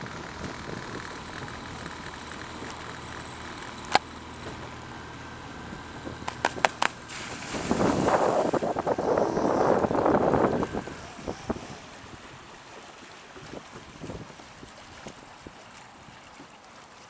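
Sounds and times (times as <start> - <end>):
wind on microphone: 0.0 - 3.1, 5.4 - 12.6, 13.4 - 16.2
outboard motor running: 0.0 - 17.0.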